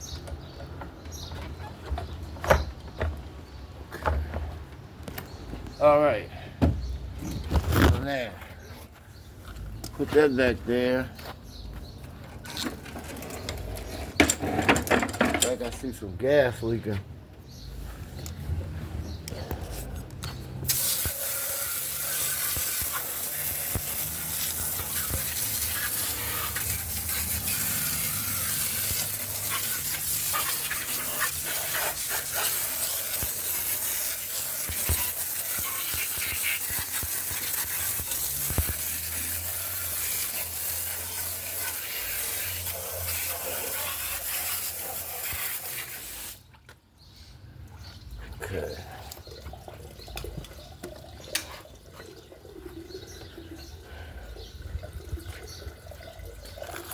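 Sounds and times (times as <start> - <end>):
pressure washer spraying: 20.7 - 46.4.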